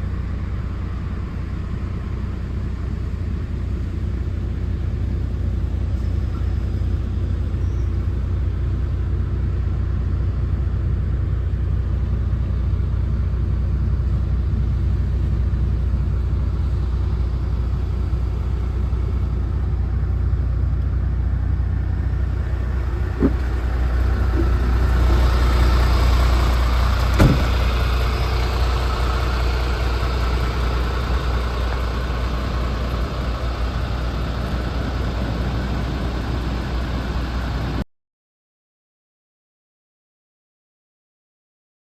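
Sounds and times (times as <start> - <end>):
diesel engine idling: 0.0 - 37.8.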